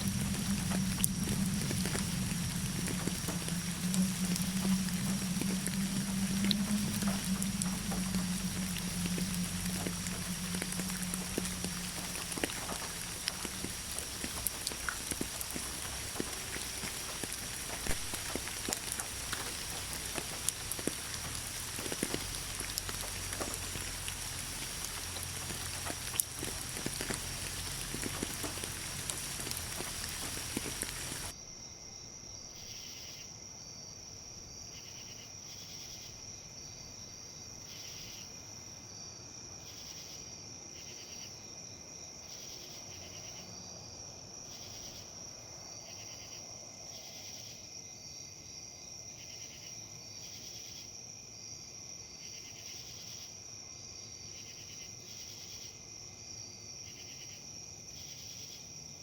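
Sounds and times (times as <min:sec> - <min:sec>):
rain and wind: 0:00.0 - 0:31.4
high insect trill: 0:00.0 - 0:43.7
crickets chirping: 0:00.0 - 0:59.0.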